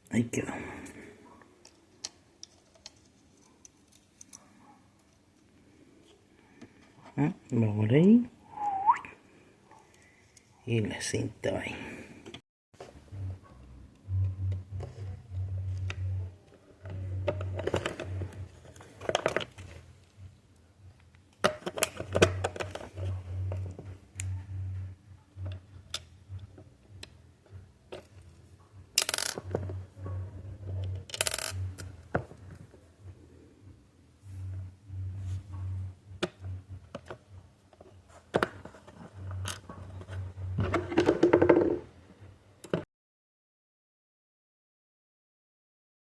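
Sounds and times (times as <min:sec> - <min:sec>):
low hum: 0:13.0 - 0:18.6, 0:29.5 - 0:37.5.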